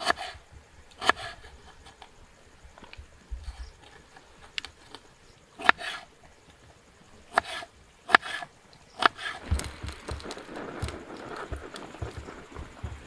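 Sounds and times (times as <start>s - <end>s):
rustling: 9.0s - 13.0s
soft low thuds: 9.4s - 13.0s.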